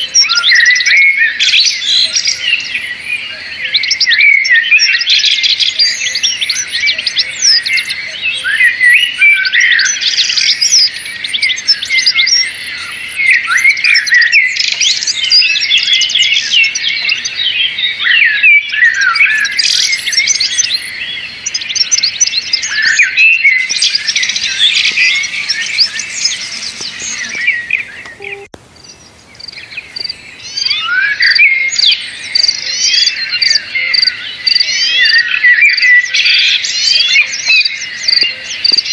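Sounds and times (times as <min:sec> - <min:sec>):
small birds chirping: 0:00.0 - 0:38.9
high pips: 0:23.6 - 0:28.6.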